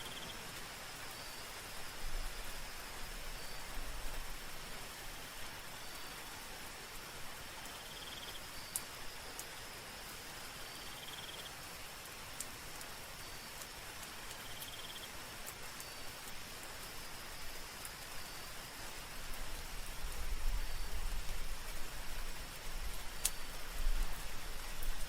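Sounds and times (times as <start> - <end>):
soft rain falling: 0.0 - 25.0
rain drop ticks: 7.6 - 10.2, 10.8 - 18.2, 18.8 - 25.0.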